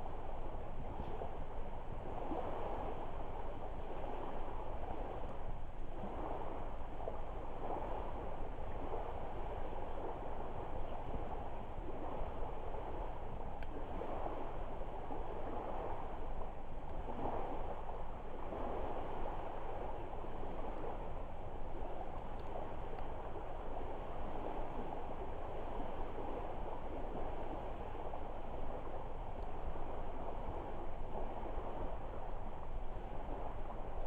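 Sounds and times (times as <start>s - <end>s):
faint fire crackles: 21.7s - 24.6s.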